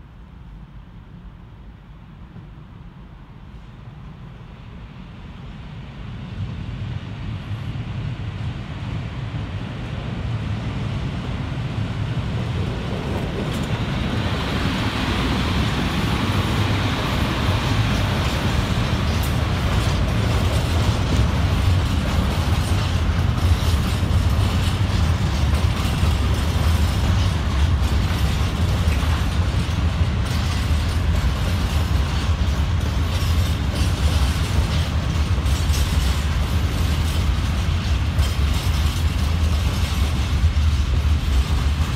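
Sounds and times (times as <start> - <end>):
freight train passing: 0.0 - 41.9
wheels clicking over rail joints: 12.9 - 41.9.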